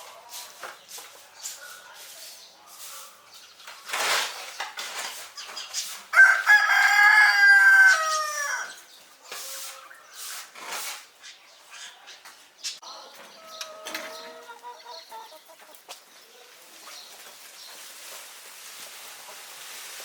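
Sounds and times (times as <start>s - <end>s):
rooster crowing: 6.1s - 8.8s.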